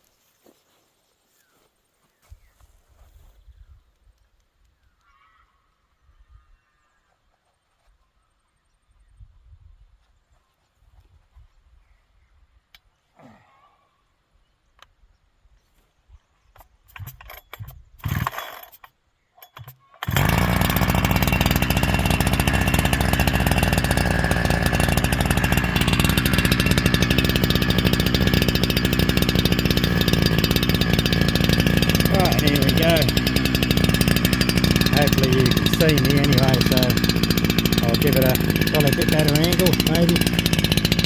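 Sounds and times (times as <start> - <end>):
chainsaw pull-start bursts: 16.6 - 41.0
chainsaw engine running: 16.8 - 41.0.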